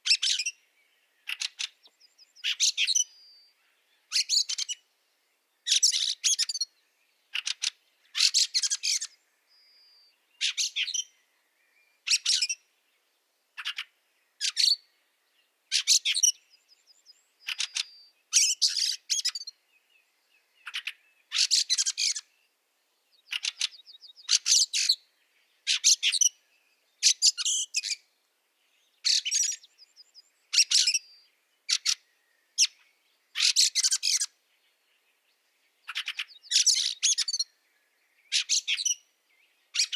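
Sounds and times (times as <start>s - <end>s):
birds rasping chattering calls: 1.2s - 3.0s, 7.3s - 9.2s, 17.4s - 19.5s, 20.6s - 22.3s, 23.2s - 25.0s, 29.0s - 32.0s, 33.4s - 34.3s, 35.8s - 37.4s.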